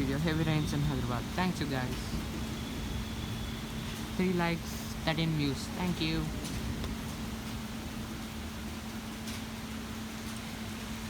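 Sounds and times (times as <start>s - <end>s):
heavy rain hissing: 0.0s - 8.0s.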